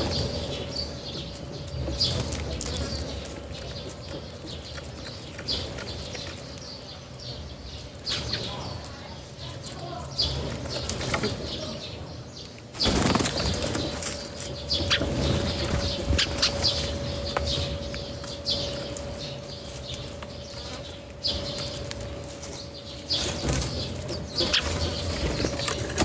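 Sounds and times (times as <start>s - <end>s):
birds' wings flapping: 12.7s - 19.3s, 23.1s - 26.0s.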